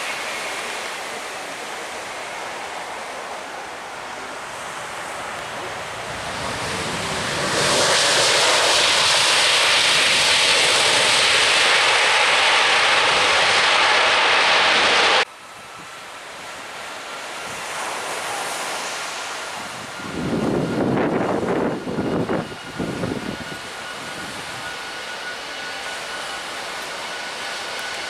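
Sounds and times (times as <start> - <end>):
rushing noise: 0.0 - 15.3
jet engines roaring: 0.0 - 28.0.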